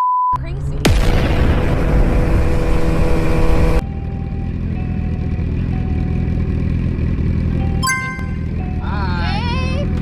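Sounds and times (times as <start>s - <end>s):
motorcycle engine running: 3.0s - 10.0s.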